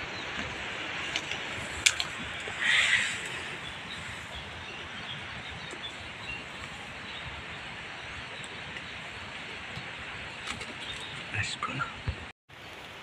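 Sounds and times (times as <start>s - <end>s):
rain on leaves: 12.5s - 13.0s.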